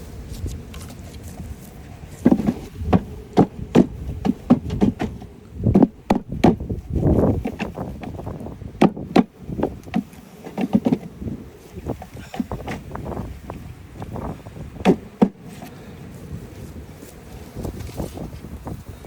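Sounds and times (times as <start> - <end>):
wooden knocks and thumps: 2.2 - 11.1, 11.9 - 13.0, 14.8 - 15.4.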